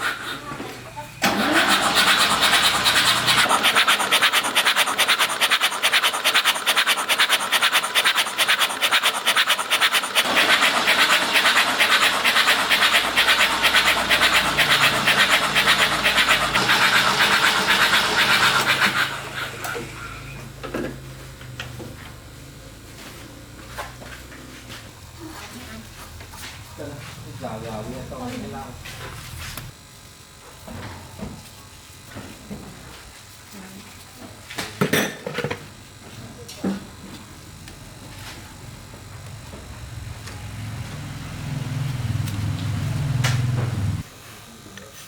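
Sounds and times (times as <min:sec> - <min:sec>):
rapid rhythmic scraping: 0:01.4 - 0:19.8.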